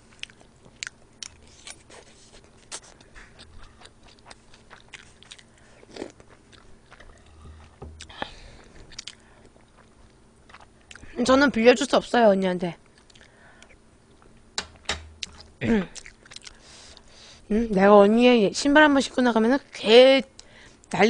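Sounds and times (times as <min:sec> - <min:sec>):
faint chewing: 0:00.0 - 0:11.1, 0:12.9 - 0:14.4, 0:15.2 - 0:17.1.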